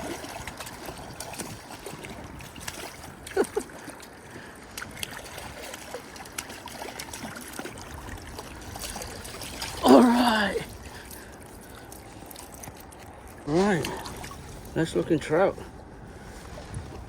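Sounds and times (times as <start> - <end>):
small splashes and clicks: 0.0 - 14.8
creek water trickling: 0.0 - 17.0.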